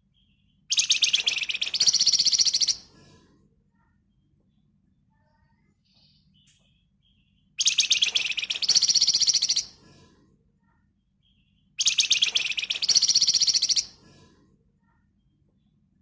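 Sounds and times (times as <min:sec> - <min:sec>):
bird singing rattling trill: 0:00.2 - 0:02.8, 0:07.1 - 0:09.7, 0:11.3 - 0:13.9.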